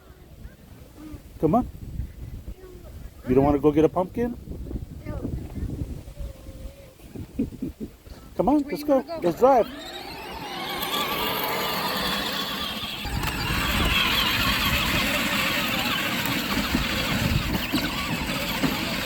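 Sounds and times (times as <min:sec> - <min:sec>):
ride-on toy truck whir: 0:08.5 - 0:19.0.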